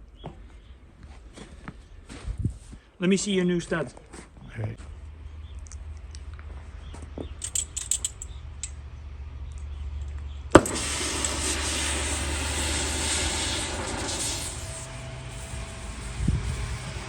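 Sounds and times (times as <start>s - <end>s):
metal parts clinking: 7.4s - 8.8s
loud steady rushing noise: 10.6s - 17.0s.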